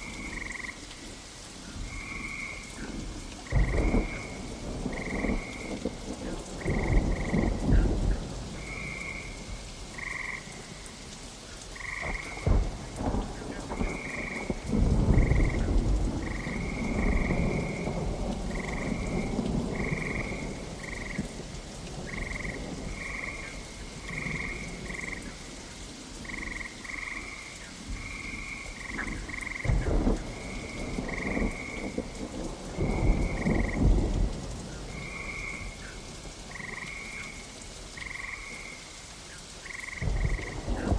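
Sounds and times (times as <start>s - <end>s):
steady rain: 0.0s - 40.9s
rolling thunder: 3.4s - 10.0s, 11.9s - 25.2s, 27.9s - 37.1s, 40.0s - 40.9s.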